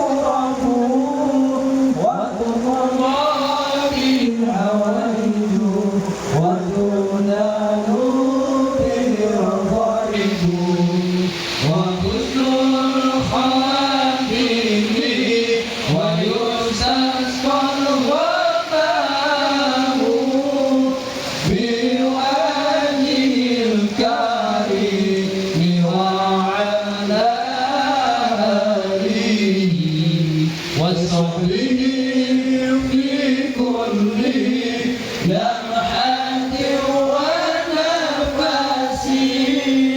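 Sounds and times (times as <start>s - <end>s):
man chanting melodically: 0.0s - 39.9s.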